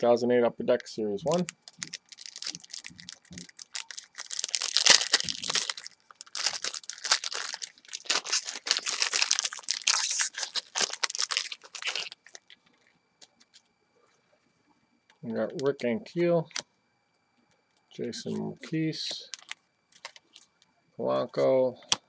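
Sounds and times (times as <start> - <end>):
wrapper tearing and crinkling: 1.3 - 12.6.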